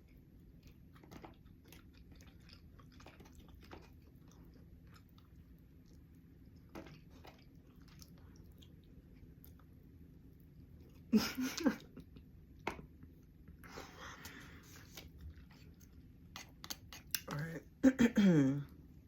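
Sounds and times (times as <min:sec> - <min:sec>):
person chewing with mouth clicks: 0:00.0 - 0:09.7, 0:14.2 - 0:17.4.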